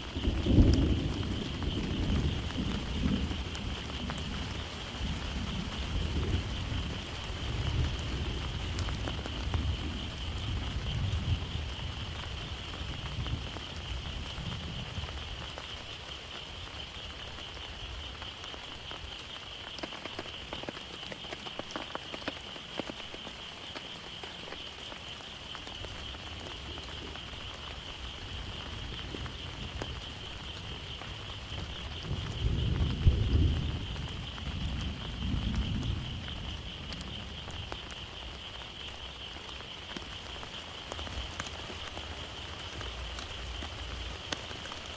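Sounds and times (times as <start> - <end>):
heavy rain falling: 0.0 - 44.9
raindrops ticking: 0.0 - 44.9
thunder rumbling: 0.0 - 44.9.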